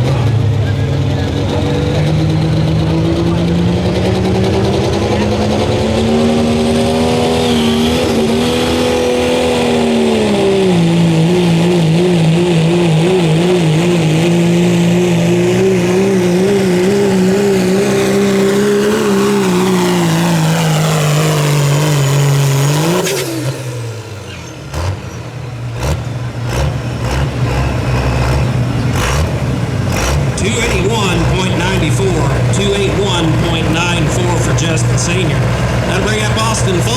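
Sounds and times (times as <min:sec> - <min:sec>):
diesel engine at full revs: 0:00.0 - 0:36.9
engine knocks: 0:24.4 - 0:36.9.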